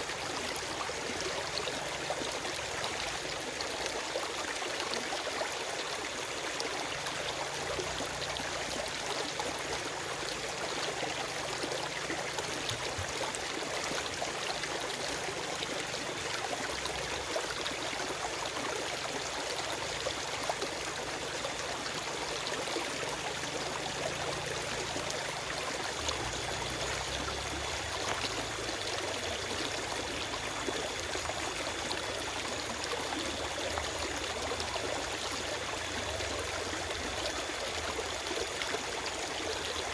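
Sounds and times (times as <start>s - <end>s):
stream flowing over stones: 0.0s - 39.9s
trickling splashes: 23.2s - 39.9s.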